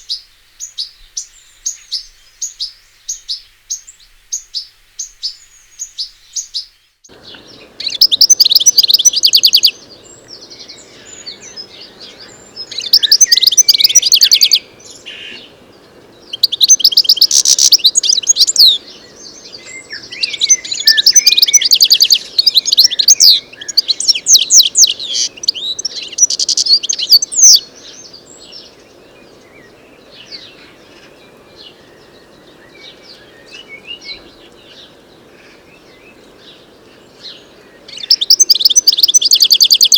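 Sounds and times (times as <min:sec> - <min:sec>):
goldfinch twittering song: 0:00.0 - 0:35.0, 0:35.7 - 0:39.9
steady low background noise: 0:00.0 - 0:39.9
bird call notes: 0:05.3 - 0:15.5, 0:16.2 - 0:28.1, 0:37.3 - 0:39.9.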